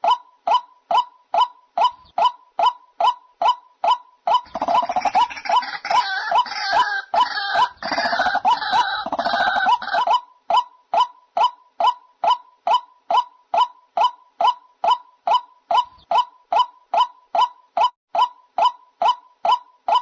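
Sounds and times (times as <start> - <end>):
harsh croaking chatter: 4.4 - 10.2.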